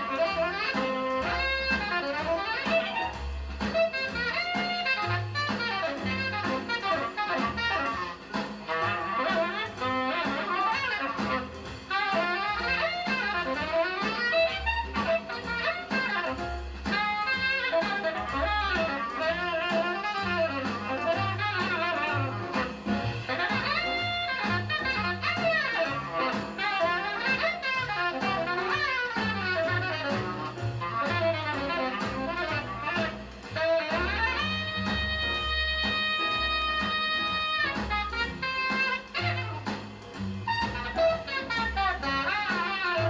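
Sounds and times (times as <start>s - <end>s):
fast saxophone lead: 0.0s - 43.0s
jazz drums and bass: 0.0s - 43.0s.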